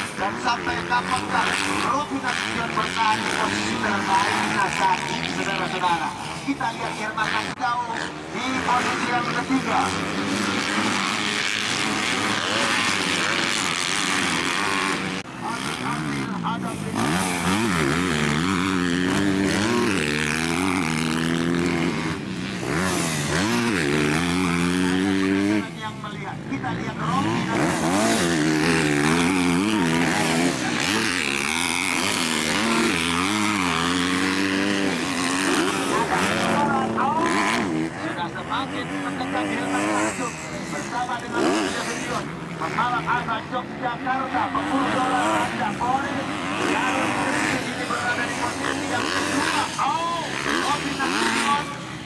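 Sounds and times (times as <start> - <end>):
motorcycle engines revving: 0.0 - 52.0.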